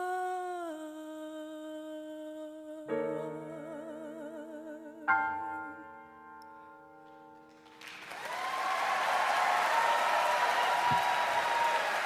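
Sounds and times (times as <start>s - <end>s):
woman singing a long note: 0.0s - 6.0s
piano chords: 2.8s - 8.0s.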